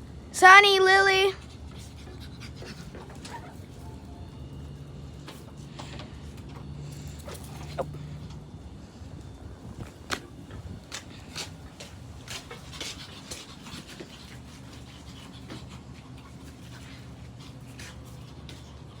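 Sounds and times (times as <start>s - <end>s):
dog panting: 1.4s - 3.8s, 11.3s - 19.0s.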